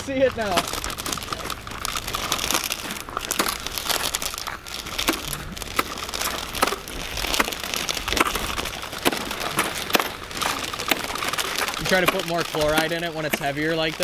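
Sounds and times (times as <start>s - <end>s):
footsteps crunching on ice: 0.0s - 14.0s.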